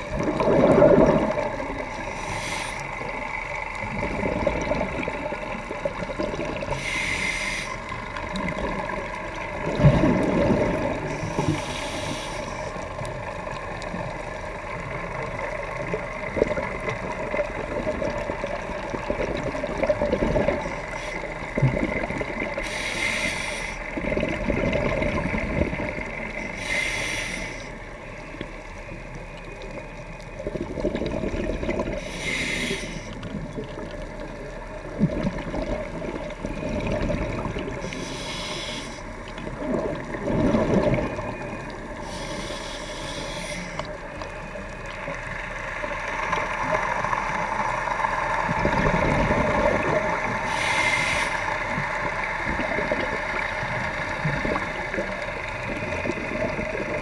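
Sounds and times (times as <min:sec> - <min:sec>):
exhaled bubbles rushing: 0:00.0 - 0:06.8, 0:07.8 - 0:11.6, 0:13.1 - 0:22.7, 0:23.8 - 0:26.5, 0:30.4 - 0:32.1, 0:33.2 - 0:38.0, 0:39.1 - 0:42.0, 0:44.7 - 0:50.5, 0:51.7 - 0:57.0
underwater hiss and rumble: 0:00.0 - 0:57.0.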